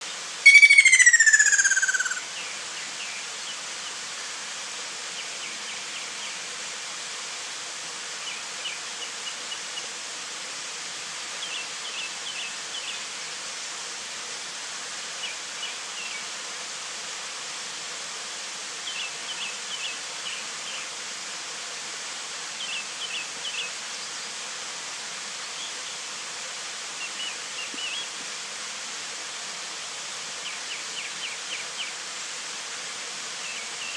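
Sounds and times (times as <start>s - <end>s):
steady hiss: 0.0s - 33.9s
faint short high chirps: 0.4s - 2.2s
bird descending whistled call: 0.4s - 2.3s.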